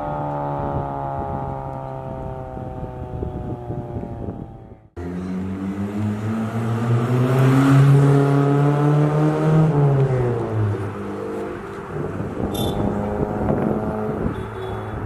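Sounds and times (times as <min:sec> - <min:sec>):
car engine revving: 0:04.9 - 0:15.0.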